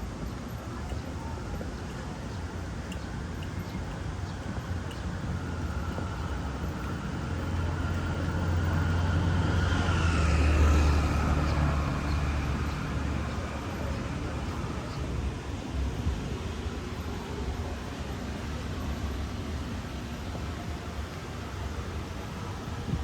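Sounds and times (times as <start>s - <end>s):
vehicle passing by: 6.8s - 15.4s.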